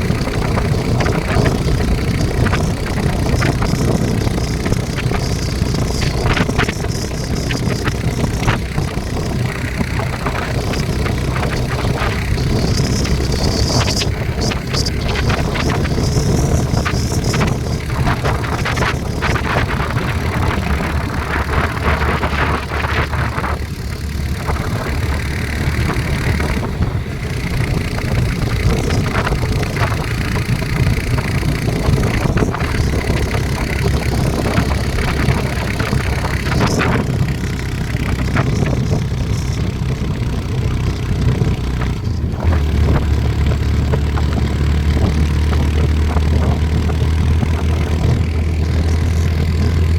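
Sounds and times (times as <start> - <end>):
vehicle engine and road rumble: 0.0 - 49.9.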